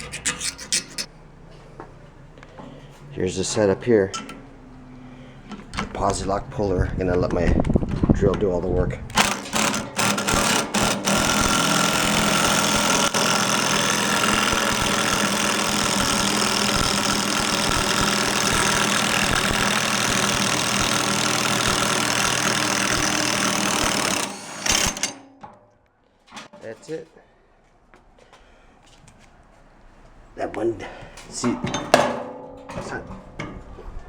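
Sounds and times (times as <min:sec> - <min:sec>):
cordless power drill running: 0:09.1 - 0:25.2.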